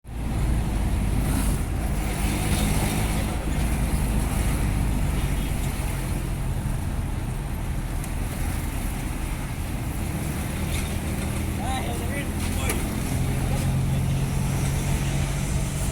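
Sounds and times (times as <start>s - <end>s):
truck engine running: 0.0s - 15.9s.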